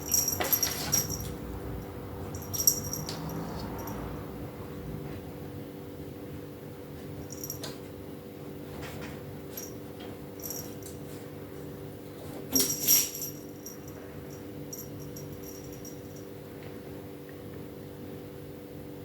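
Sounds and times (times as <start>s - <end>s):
cat toy jingling and rattling: 0.0s - 4.2s, 9.5s - 11.0s, 12.5s - 16.3s.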